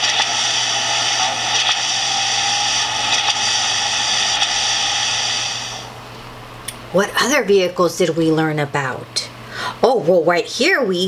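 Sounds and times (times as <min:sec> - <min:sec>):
cement mixer engine from speaker: 0:00.0 - 0:06.0.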